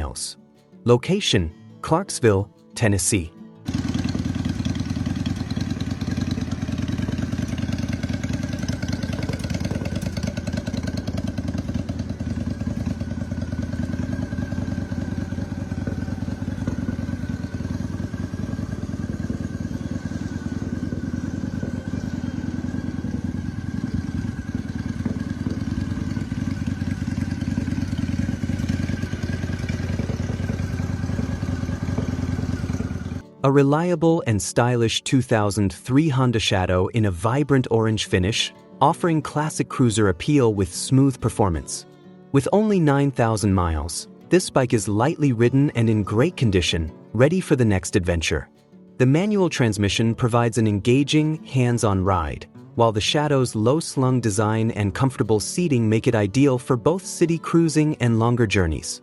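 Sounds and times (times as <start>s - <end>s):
motorcycle engine idling: 3.7s - 33.3s.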